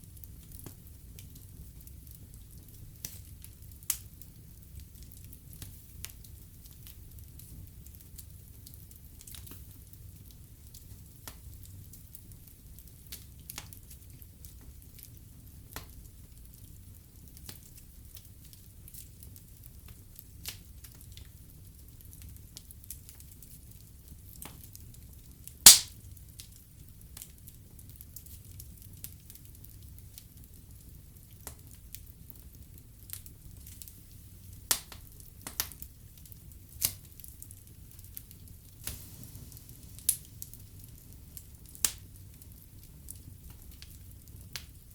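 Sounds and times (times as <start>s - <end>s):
fire crackling: 0.1s - 44.9s
fire rumbling: 25.6s - 26.4s
fire popping: 25.6s - 26.5s, 31.4s - 44.9s.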